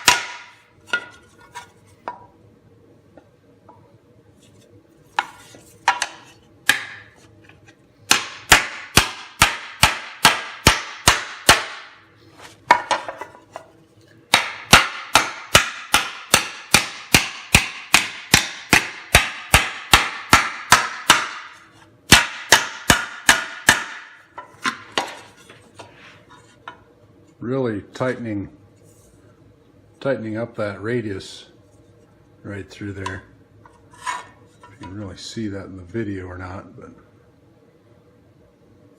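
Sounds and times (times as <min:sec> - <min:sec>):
hammer striking sheet metal: 0:00.0 - 0:00.6, 0:08.1 - 0:12.0, 0:14.3 - 0:24.3.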